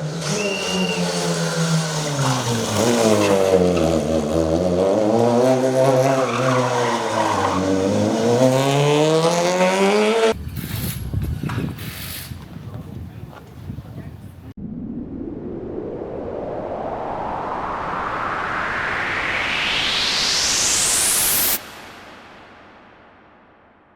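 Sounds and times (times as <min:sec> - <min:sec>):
rally car engine revving: 0:00.0 - 0:10.4.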